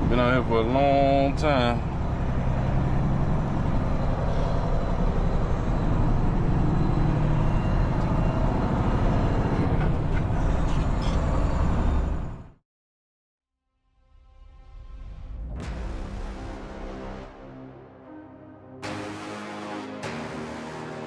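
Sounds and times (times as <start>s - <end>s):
truck engine rumble: 0.0s - 12.4s.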